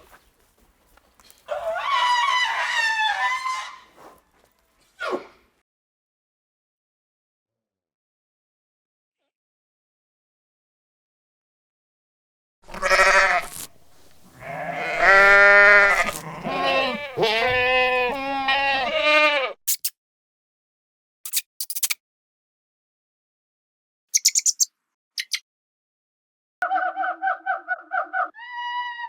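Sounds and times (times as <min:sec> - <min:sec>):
animal bleating: 0:01.5 - 0:03.9, 0:12.6 - 0:19.6
short clicks: 0:21.3 - 0:22.0
high chirps: 0:24.1 - 0:25.4.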